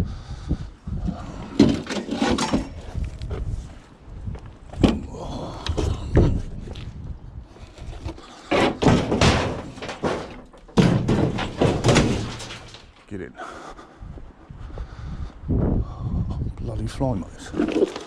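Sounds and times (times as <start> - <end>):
scrap bangs and clatters: 1.4 - 2.9, 7.5 - 13.1.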